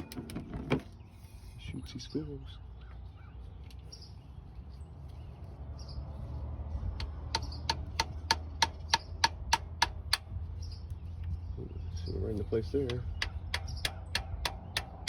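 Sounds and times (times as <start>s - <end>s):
hammer tapping: 7.0s - 10.3s.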